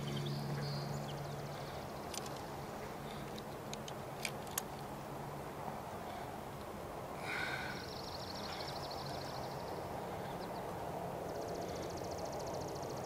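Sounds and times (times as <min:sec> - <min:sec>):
songbird rapid trill: 0:00.0 - 0:03.7, 0:07.3 - 0:13.0
steady low hum: 0:00.0 - 0:13.0.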